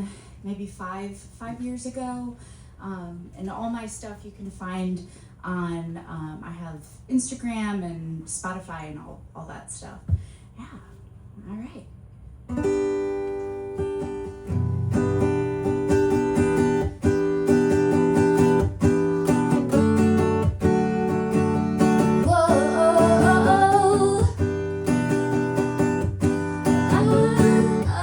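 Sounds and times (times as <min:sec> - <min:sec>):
acoustic guitar strummed chords: 0:12.5 - 0:28.0.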